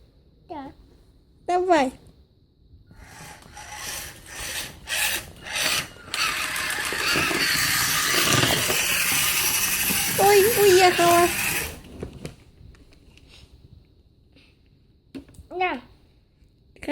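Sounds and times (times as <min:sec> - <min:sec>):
toy truck motor whirring: 0:03.0 - 0:12.0.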